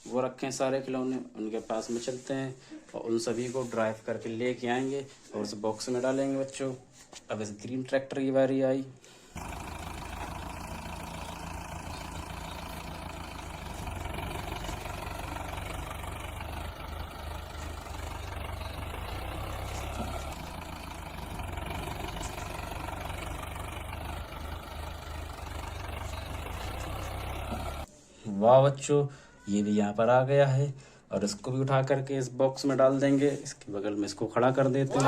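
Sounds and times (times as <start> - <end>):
tractor engine idling: 9.3 - 27.9.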